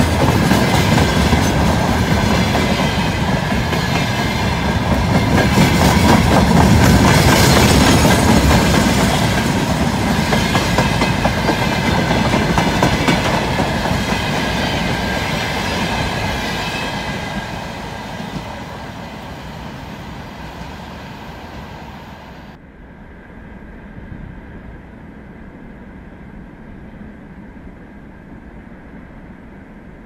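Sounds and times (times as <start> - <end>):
wheels clacking over rail joints: 0.0 - 20.0
freight wagons rolling past: 0.0 - 22.6.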